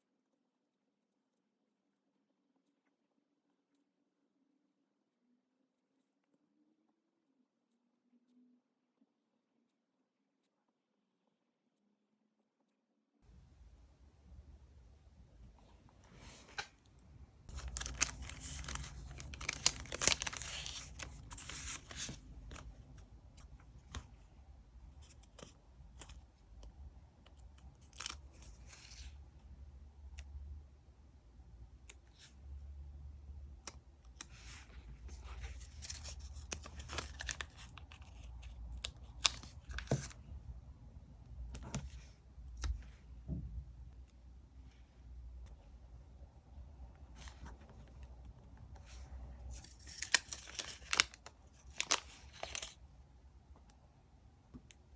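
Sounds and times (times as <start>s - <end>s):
paper tearing and crinkling: 17.5s - 22.2s, 49.6s - 52.8s.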